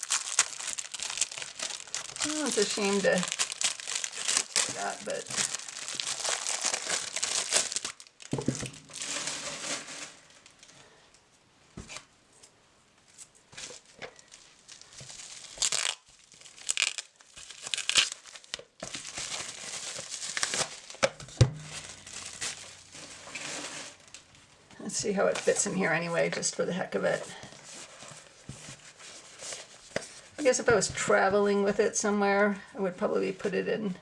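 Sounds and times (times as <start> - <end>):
packaging crinkling and tearing: 0.0 - 10.6, 13.6 - 24.4.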